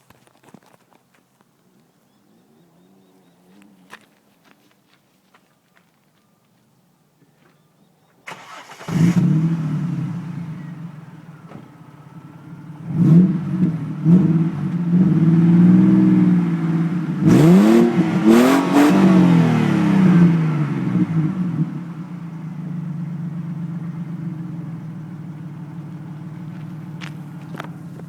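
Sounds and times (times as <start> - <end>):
car engine idling: 8.3 - 28.0
car engine revving: 8.3 - 28.0.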